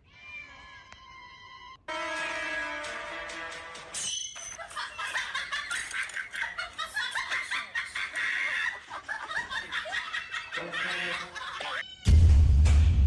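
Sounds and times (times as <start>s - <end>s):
person laughing: 4.6s - 11.8s.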